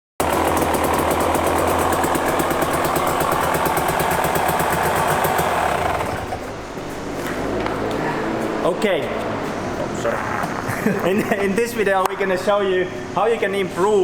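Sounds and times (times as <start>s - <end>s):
dirt bike engine idling: 0.2s - 6.9s.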